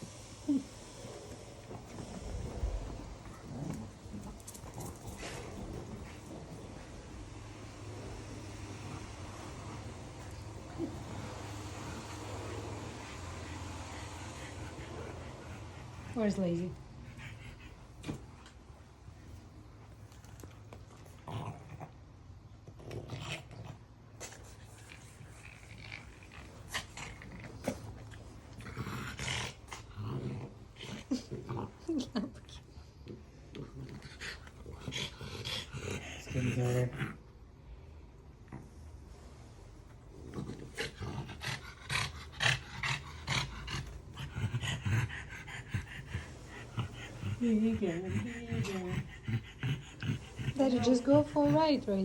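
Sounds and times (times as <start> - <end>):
dog growling: 0.4 - 6.6, 20.2 - 24.0, 24.7 - 37.4, 40.1 - 52.0
dog breathing hard: 11.3 - 18.6, 40.6 - 52.0.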